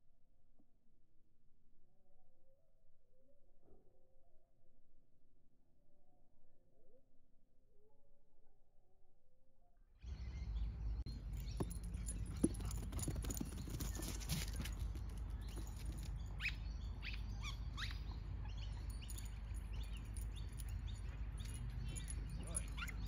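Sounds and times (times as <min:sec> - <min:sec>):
bird chirps: 0:10.1 - 0:23.0.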